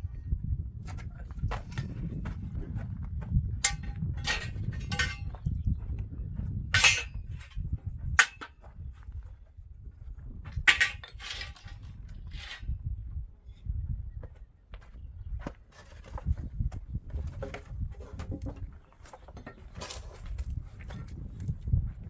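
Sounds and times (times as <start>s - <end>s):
metal clanks and knocks: 3.6s - 5.5s, 6.7s - 7.6s, 8.2s - 8.6s, 10.6s - 12.7s, 17.2s - 21.2s.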